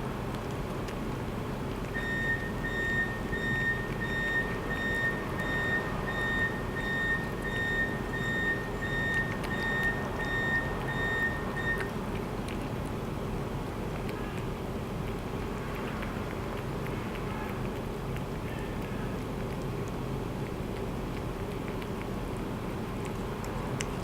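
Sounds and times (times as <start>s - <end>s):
low engine and traffic rumble: 0.0s - 24.0s
reversing alarm beeping: 2.0s - 11.9s.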